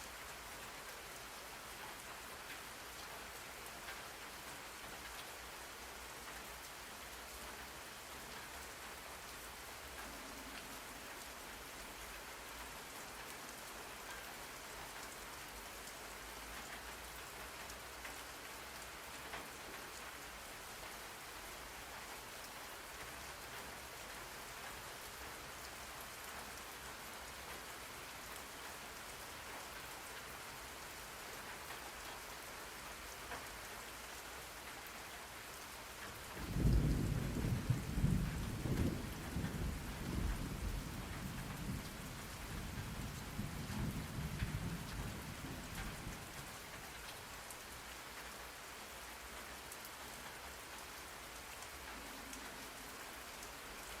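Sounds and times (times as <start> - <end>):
steady rain falling: 0.0 - 54.0
thunder rumbling: 36.4 - 46.0.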